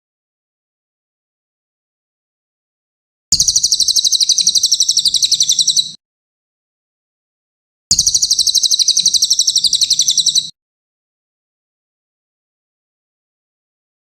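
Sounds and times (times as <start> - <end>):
bird fast high trill: 3.4 - 6.0, 7.9 - 10.5.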